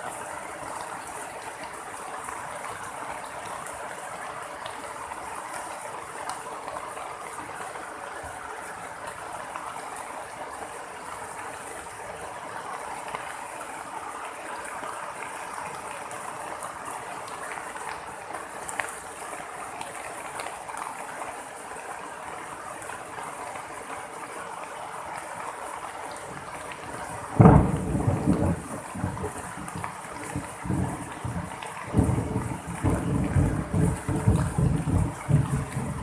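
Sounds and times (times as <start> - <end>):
heavy rain falling: 0.0 - 36.0
thunder clap and rumble: 27.0 - 36.0.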